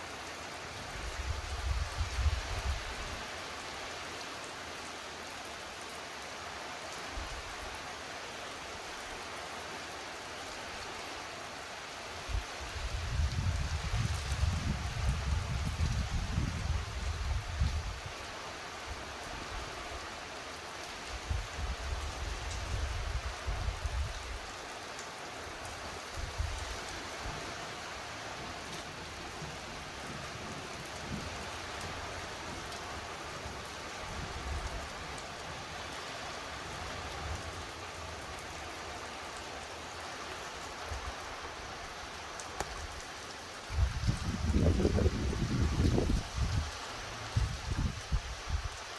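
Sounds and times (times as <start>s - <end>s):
steady rain falling: 0.0s - 48.9s
wind gusts on microphone: 0.9s - 3.2s, 12.2s - 18.2s, 21.1s - 24.5s, 43.6s - 48.9s.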